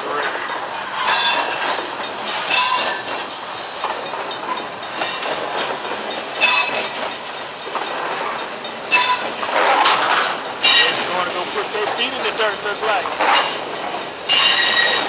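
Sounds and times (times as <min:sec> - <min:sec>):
steel wheels rushing on rail: 0:00.0 - 0:15.0
high metallic ringing tone: 0:01.0 - 0:03.2, 0:06.4 - 0:07.5, 0:08.9 - 0:09.4, 0:10.6 - 0:11.1, 0:13.4 - 0:15.0.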